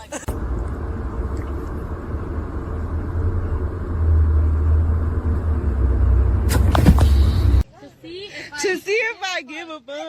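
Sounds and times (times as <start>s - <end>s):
steady low rumble: 0.3s - 7.6s.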